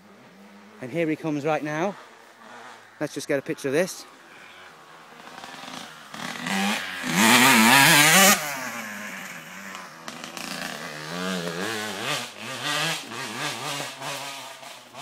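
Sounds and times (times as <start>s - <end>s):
motocross bike engine revving: 3.9s - 15.0s.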